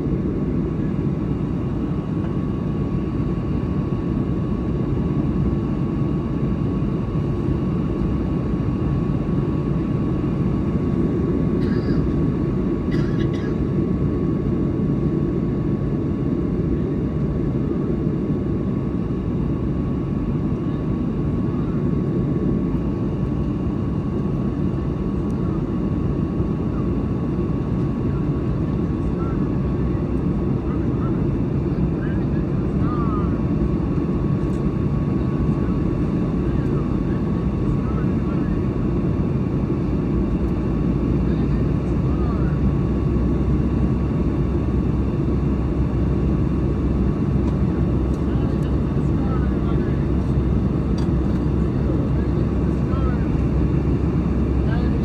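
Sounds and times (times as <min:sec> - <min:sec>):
aircraft engine rumble: 0:00.0 - 0:55.0
thin steady whine: 0:39.6 - 0:55.0
jet engine cabin rush: 0:45.3 - 0:55.0.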